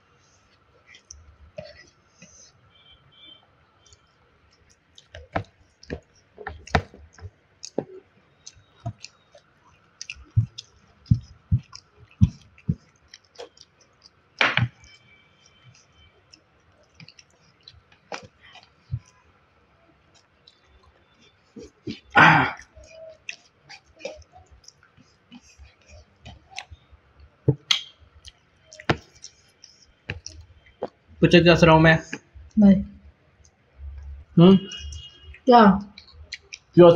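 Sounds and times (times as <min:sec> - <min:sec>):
person chewing food: 0:00.4 - 0:31.1, 0:33.4 - 0:36.8.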